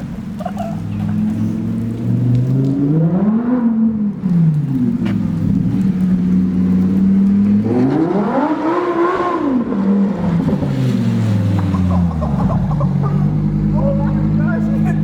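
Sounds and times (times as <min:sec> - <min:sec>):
sports car engine revving: 0:00.8 - 0:15.0.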